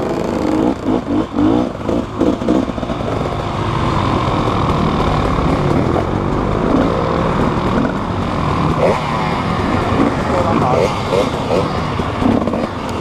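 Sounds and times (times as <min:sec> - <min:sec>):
motorcycle engine running: 0:00.0 - 0:13.0
person speaking: 0:10.0 - 0:11.7.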